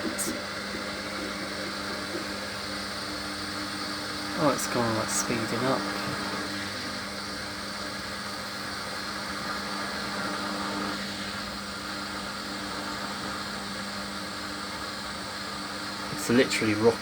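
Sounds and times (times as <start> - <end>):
washing machine drum spinning: 0.0 - 4.5
motor hum and whine: 0.0 - 17.0.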